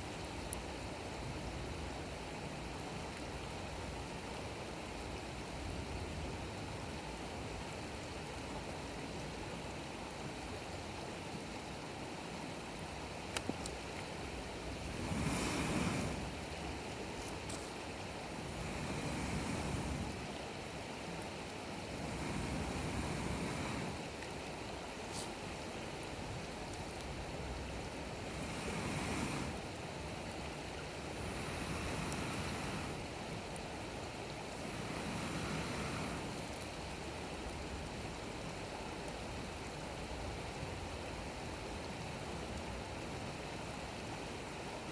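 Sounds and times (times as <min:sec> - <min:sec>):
campfire crackles: 0:00.1 - 0:43.8
rushing noise: 0:14.8 - 0:16.4.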